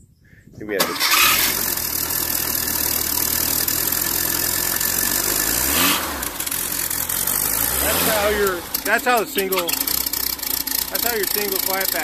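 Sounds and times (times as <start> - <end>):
engine running loud: 1.0 - 12.0.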